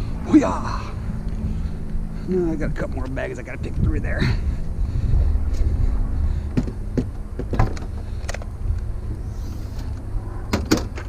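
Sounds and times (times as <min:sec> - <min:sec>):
steady low rumble: 0:00.0 - 0:11.0
knocks of items being handled: 0:06.5 - 0:07.9.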